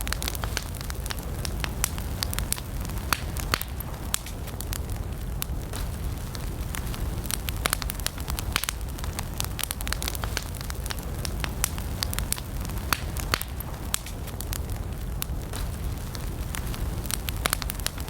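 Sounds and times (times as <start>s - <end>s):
low rush of flames: 0.0s - 18.0s
snaps of burning wood: 0.0s - 18.0s.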